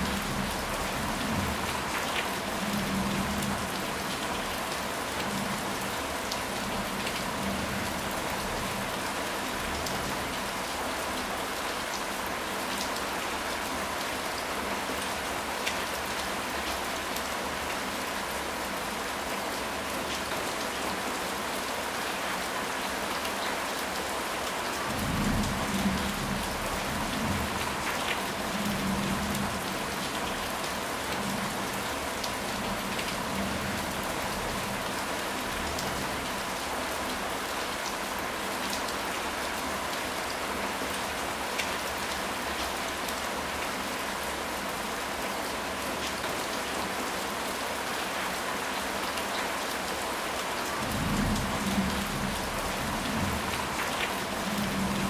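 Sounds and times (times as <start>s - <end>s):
heavy rain pattering: 0.0s - 55.0s.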